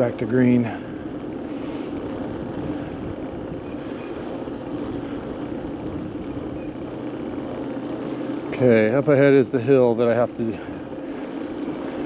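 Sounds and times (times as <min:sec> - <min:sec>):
bicycle ride rushing noise: 0:00.0 - 0:12.0
wind on microphone: 0:02.0 - 0:06.9.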